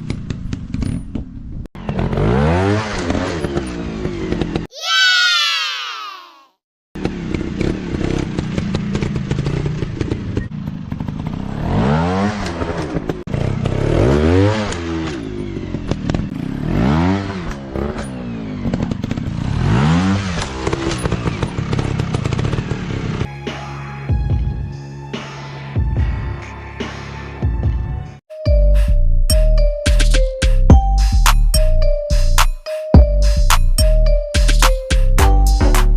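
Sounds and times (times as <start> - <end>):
dirt bike engines revving: 1.8 - 4.7, 7.0 - 23.3.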